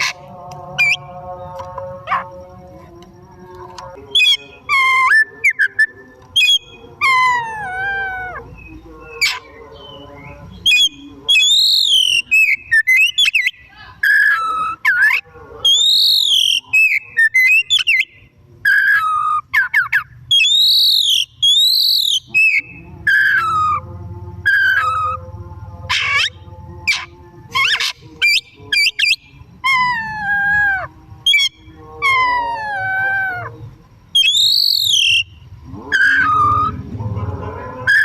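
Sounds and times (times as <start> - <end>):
bird singing whistled phrases: 4.1 - 23.8, 34.2 - 36.8.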